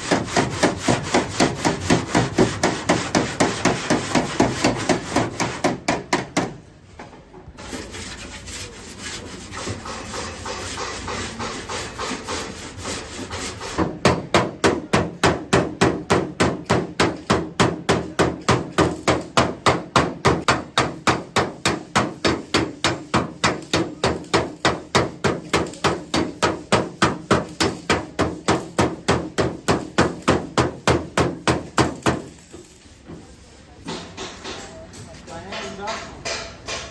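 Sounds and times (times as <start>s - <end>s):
rough rubbing or scraping: 0.0s - 5.8s, 7.6s - 13.9s, 25.6s - 34.4s
hammer beating metal: 35.4s - 36.9s.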